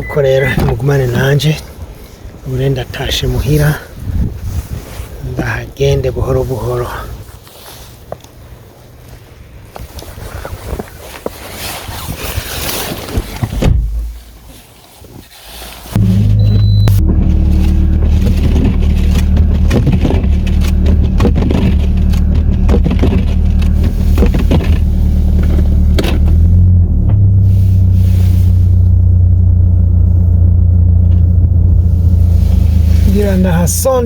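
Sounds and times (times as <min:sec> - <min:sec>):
tyres knocking and scraping on snow: 0:15.2 - 0:27.4
car engine and tyres droning: 0:15.3 - 0:34.0.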